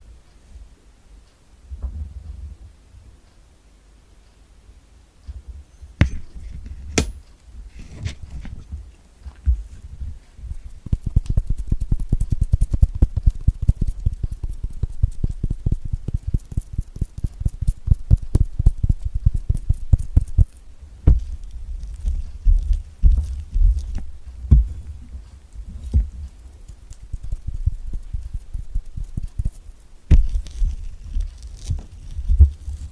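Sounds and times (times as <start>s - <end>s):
fingers tapping on fruit: 10.6s - 24.8s, 25.8s - 32.9s.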